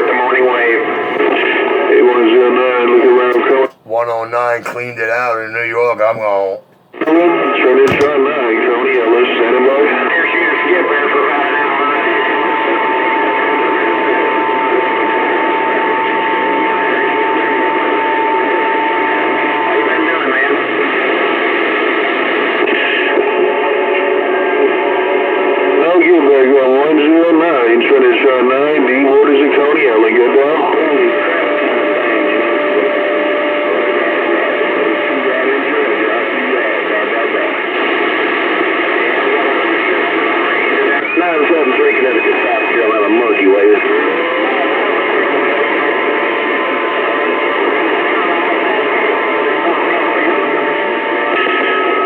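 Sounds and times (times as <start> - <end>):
radio static hiss: 0.0 - 12.2, 33.6 - 52.0.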